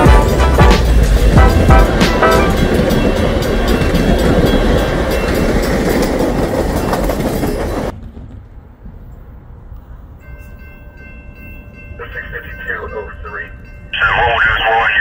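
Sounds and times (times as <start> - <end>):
train wheels clattering on rails: 0.0 - 9.2.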